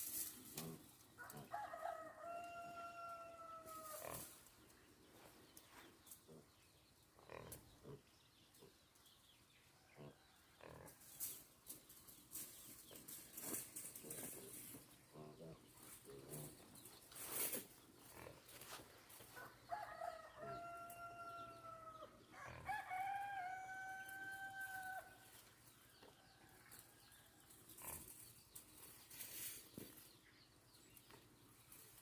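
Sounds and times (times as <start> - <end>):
rooster crowing: 1.2 - 4.0, 19.4 - 25.1.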